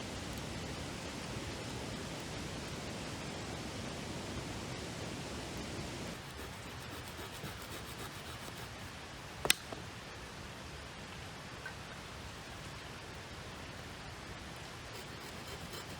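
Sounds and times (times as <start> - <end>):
sharp click: 9.4 - 9.8.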